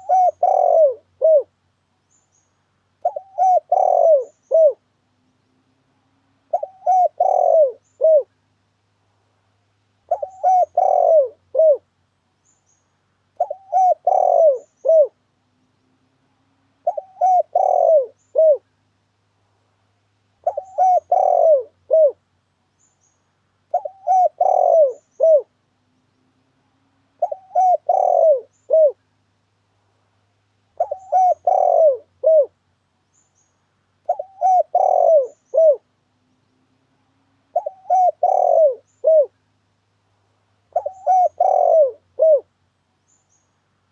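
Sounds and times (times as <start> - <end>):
dove cooing: 0.0 - 1.5, 3.0 - 4.9, 6.5 - 8.3, 10.1 - 11.9, 13.4 - 15.2, 16.8 - 18.7, 20.4 - 22.2, 23.7 - 25.6, 27.2 - 29.0, 30.7 - 32.6, 34.0 - 35.9, 37.4 - 39.4, 40.7 - 42.5.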